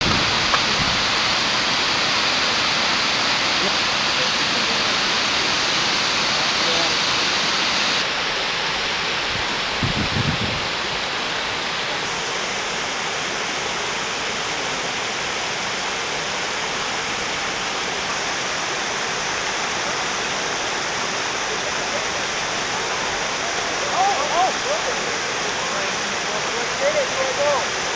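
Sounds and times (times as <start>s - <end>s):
water pouring over a dam: 0.0s - 27.9s.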